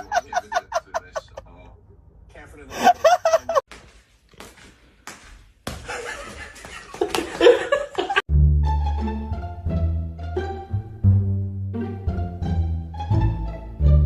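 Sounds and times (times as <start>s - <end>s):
people laughing: 0.0s - 1.8s, 2.7s - 3.6s, 5.8s - 8.3s
background noise: 0.0s - 8.3s
plucked-string music with bass: 8.3s - 14.0s.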